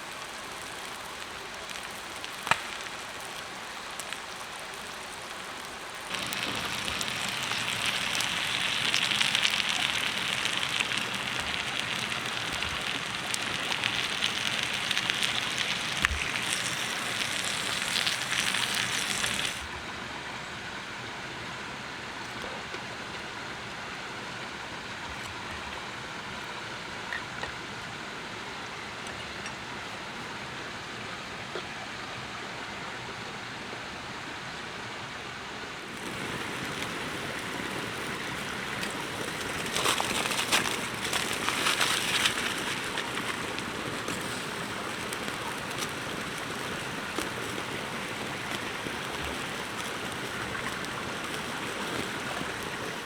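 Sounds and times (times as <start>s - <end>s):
steady hiss: 0.0s - 22.1s, 29.6s - 53.0s
sharp crackles and clicks: 0.2s - 4.8s, 5.6s - 19.7s, 35.9s - 53.0s.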